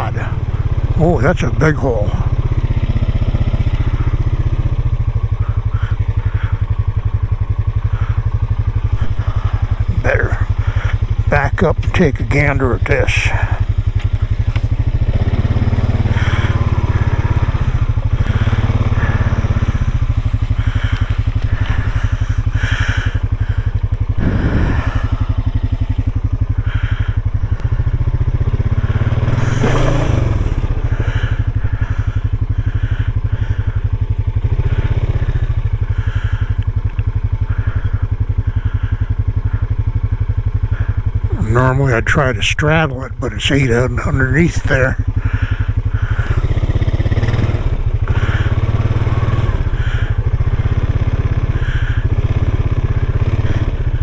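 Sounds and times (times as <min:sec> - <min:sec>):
vehicle engine idling: 0:00.0 - 0:54.0.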